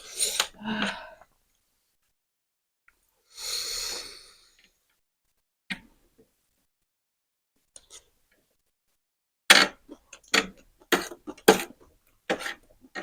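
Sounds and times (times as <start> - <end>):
breathy hiss from mouth: 3.3 - 4.6.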